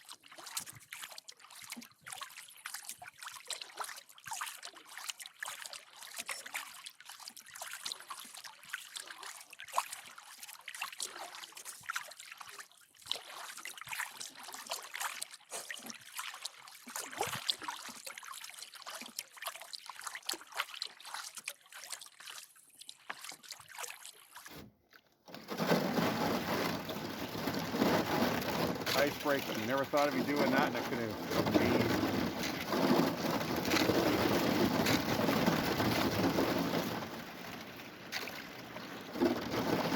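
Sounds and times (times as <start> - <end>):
skim ice crackling against canoe hull: 24.4 - 39.9.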